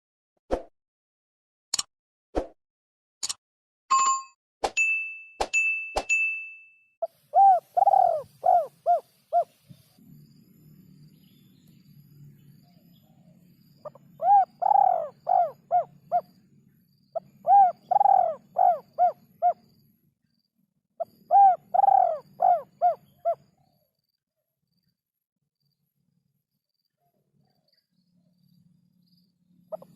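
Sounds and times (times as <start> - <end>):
dove cooing: 7.3 - 9.6, 13.8 - 16.3, 17.2 - 19.6, 21.0 - 23.4.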